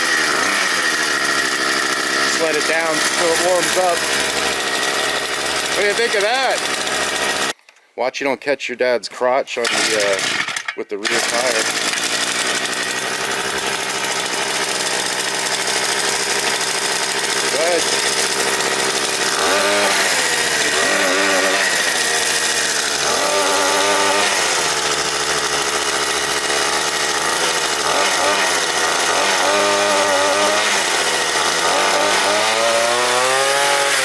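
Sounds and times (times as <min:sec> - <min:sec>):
pit bike engine revving: 0:00.0 - 0:07.6, 0:09.6 - 0:34.0.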